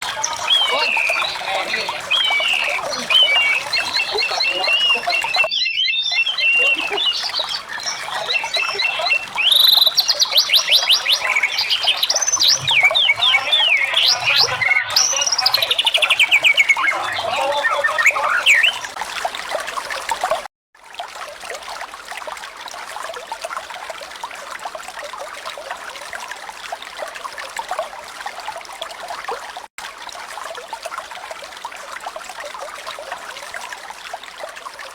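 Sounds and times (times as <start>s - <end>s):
eagle calls: 0.0s - 18.9s.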